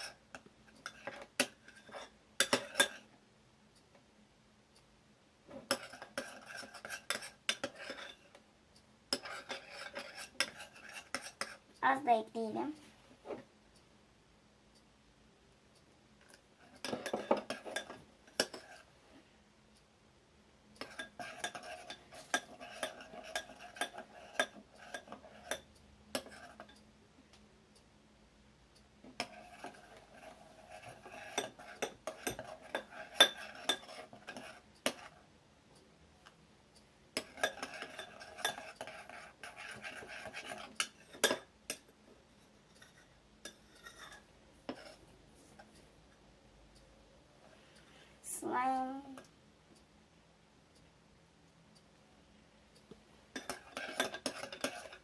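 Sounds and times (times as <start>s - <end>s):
spoon scraping slime in a bowl: 0.0s - 3.1s, 5.6s - 8.4s, 9.1s - 11.6s, 16.3s - 18.9s, 20.8s - 26.8s, 29.2s - 35.2s, 37.2s - 45.7s, 53.3s - 55.0s.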